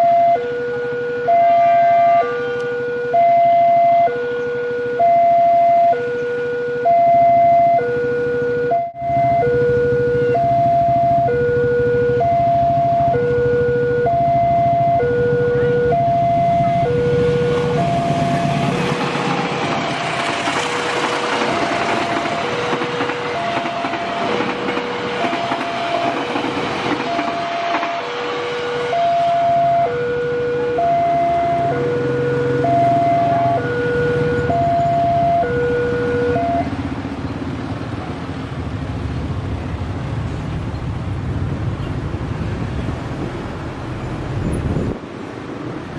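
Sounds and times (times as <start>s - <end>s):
level crossing two-tone warning signal: 0.0s - 37.0s
road traffic moving off: 0.0s - 45.9s
train passing: 9.0s - 45.9s.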